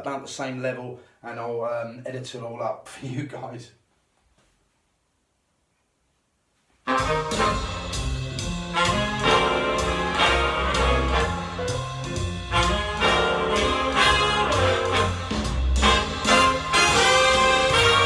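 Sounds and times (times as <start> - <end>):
brass music through loudspeakers: 6.8 - 18.0.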